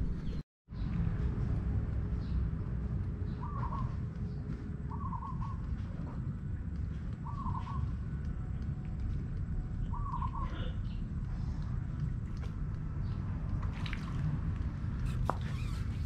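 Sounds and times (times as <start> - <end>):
steady low rumble: 0.0 - 16.0
bird calling: 3.3 - 4.0, 4.8 - 6.2, 7.2 - 7.9, 9.8 - 11.0.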